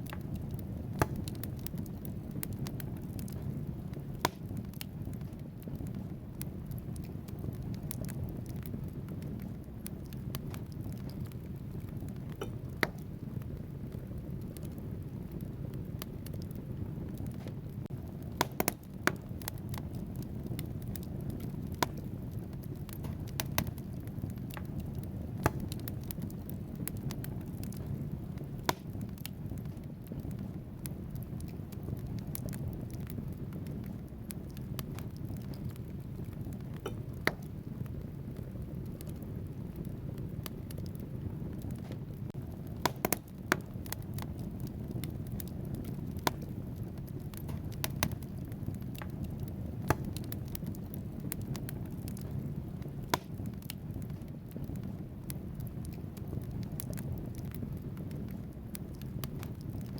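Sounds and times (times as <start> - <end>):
fire rumbling: 0.0 - 59.9
wood crackling and popping: 0.0 - 59.9.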